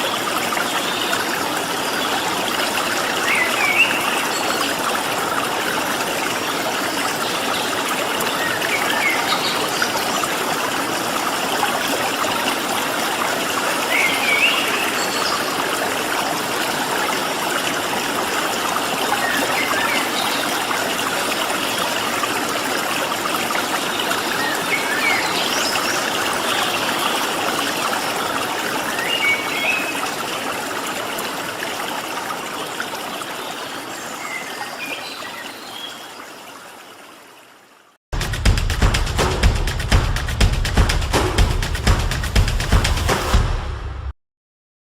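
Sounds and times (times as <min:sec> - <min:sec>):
stream water running: 0:00.0 - 0:43.2
music with heavy beat: 0:38.2 - 0:44.1.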